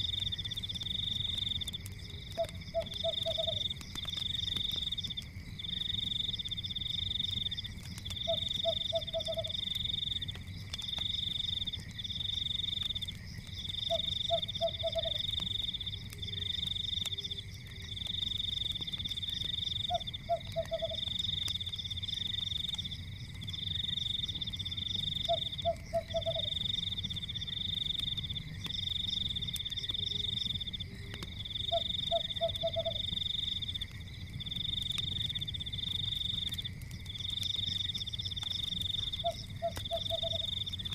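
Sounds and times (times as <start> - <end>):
fireplace crackling: 0.0 - 40.9
insects trilling: 0.0 - 40.9
frog croaking: 2.3 - 3.7, 8.2 - 9.6, 19.8 - 21.1, 25.2 - 26.6, 31.6 - 33.1, 39.1 - 40.7.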